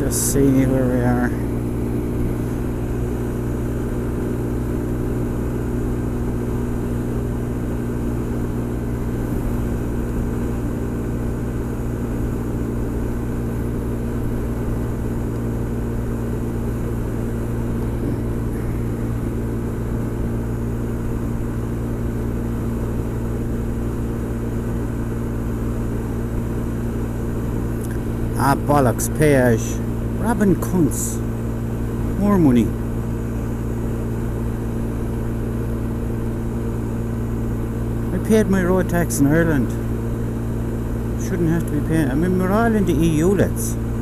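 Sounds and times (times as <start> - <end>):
road and wind noise: 0.0 - 44.0
scooter engine running: 0.0 - 44.0.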